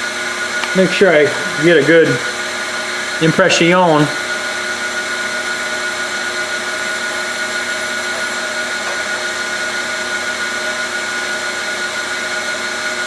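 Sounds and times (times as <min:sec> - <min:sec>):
grinder running: 0:00.0 - 0:13.0.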